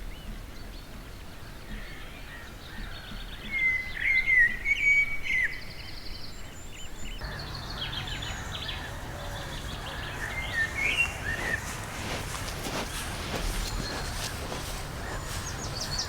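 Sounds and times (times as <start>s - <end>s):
buzzy bird trill: 7.2s - 16.0s
outdoor background noise: 7.2s - 16.0s
songbirds singing and chirping: 7.2s - 16.0s.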